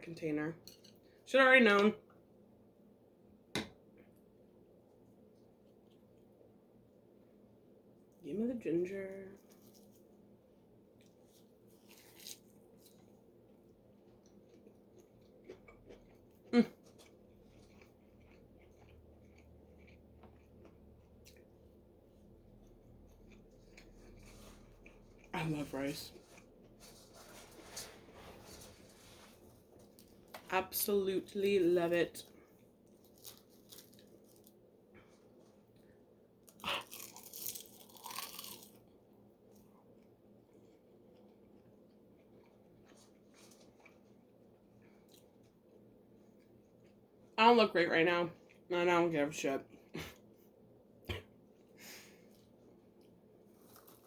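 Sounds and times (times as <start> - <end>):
person chewing: 11.0 - 21.7, 22.5 - 25.3, 36.5 - 38.9, 39.5 - 47.1, 52.3 - 54.0
person biting crunchy food: 36.5 - 38.8, 53.6 - 54.0.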